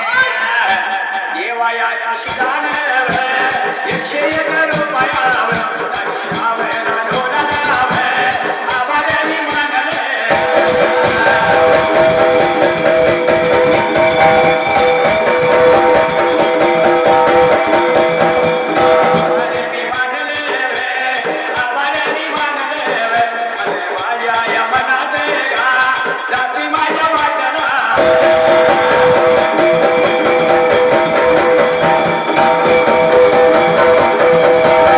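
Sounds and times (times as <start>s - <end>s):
jingling percussion: 2.2s - 34.9s
sustained melodic notes: 10.3s - 19.9s, 28.0s - 34.9s.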